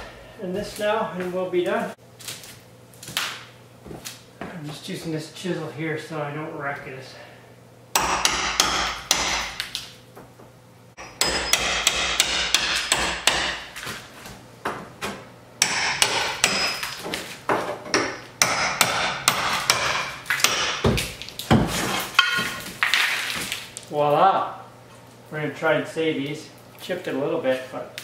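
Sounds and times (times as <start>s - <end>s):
hammer striking chisel: 8.0s - 9.7s, 11.0s - 13.7s, 15.6s - 17.0s, 17.9s - 22.6s.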